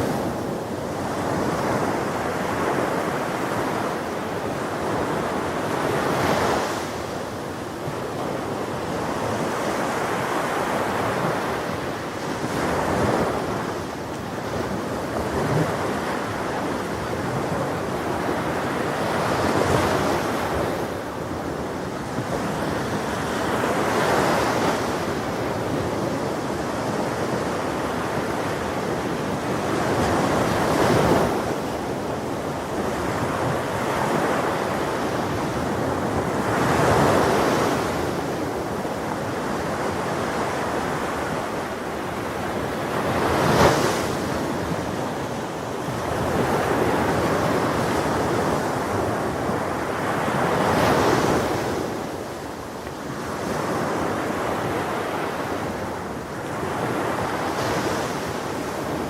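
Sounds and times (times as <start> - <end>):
ocean waves breaking on shore: 0.0 - 59.0.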